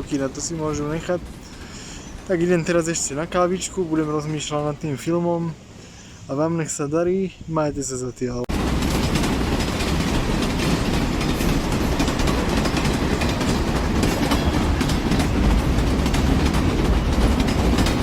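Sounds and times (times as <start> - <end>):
wheels clacking over rail joints: 0.0 - 4.8, 8.5 - 18.0
train rumble: 0.0 - 7.6, 8.3 - 18.0.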